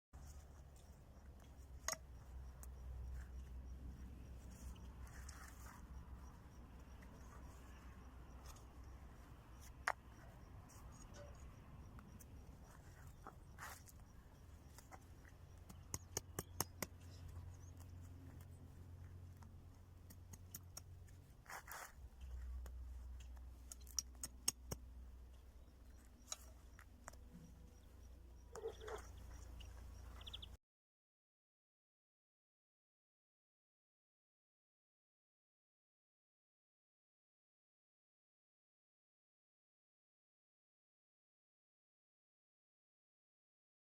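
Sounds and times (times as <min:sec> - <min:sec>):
grass rustling by hand: 0:00.2 - 0:30.5.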